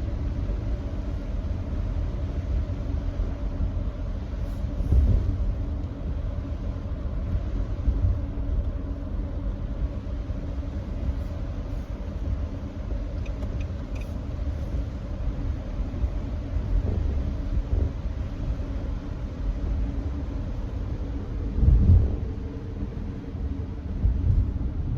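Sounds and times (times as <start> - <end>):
road and tyre noise on wet road: 0.0 - 24.9.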